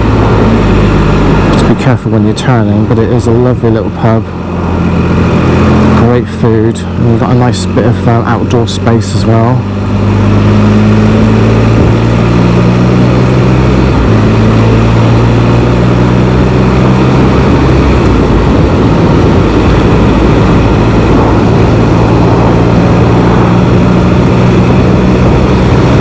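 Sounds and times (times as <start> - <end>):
wind on microphone: 0.0 - 2.0, 10.0 - 26.0
motorcycle engine droning: 0.0 - 26.0.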